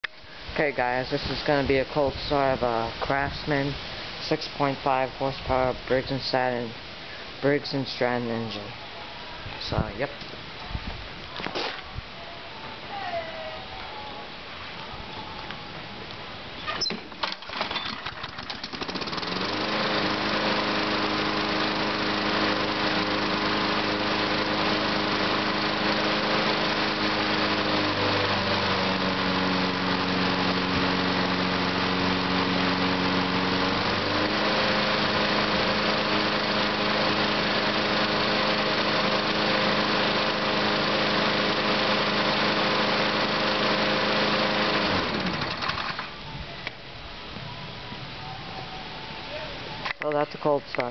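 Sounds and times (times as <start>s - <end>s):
lawn mower engine running: 16.8s - 46.3s
engine cranking rattles: 17.1s - 20.6s, 32.7s - 46.2s.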